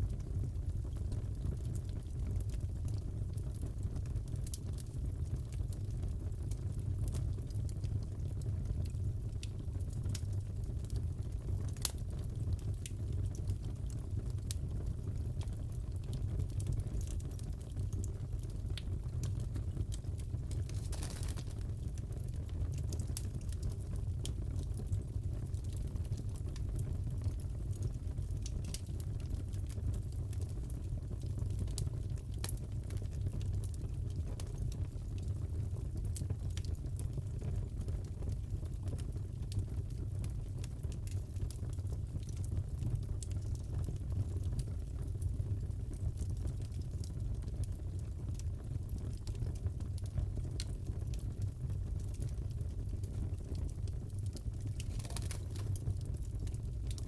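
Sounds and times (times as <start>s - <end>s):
wood fire crackling: 0.0s - 57.0s
fire pops and snaps: 0.1s - 57.0s.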